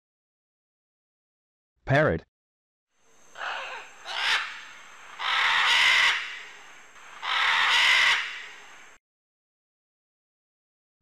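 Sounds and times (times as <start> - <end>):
parrot squawking: 3.4 - 6.5, 7.2 - 8.6.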